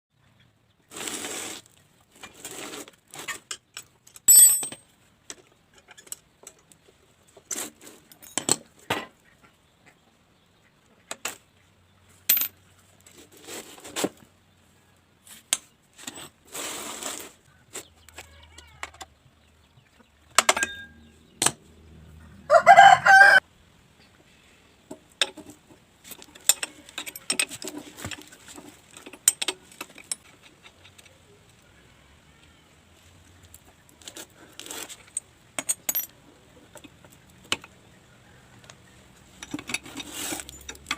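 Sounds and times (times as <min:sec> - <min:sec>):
metal tool clinks and scrapes: 0:04.3 - 0:04.8, 0:20.4 - 0:21.1, 0:25.2 - 0:31.2, 0:39.3 - 0:40.9.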